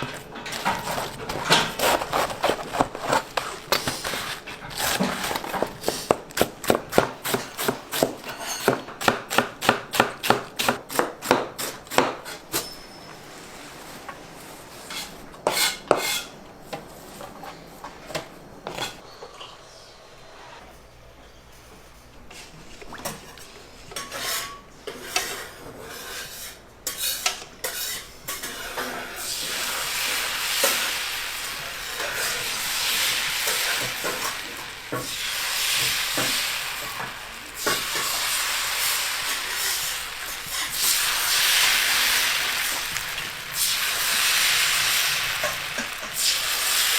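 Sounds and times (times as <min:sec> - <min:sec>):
utensils clinking on cookware: 0:00.0 - 0:13.6, 0:23.9 - 0:46.9
food sizzling in hot oil: 0:29.2 - 0:46.9.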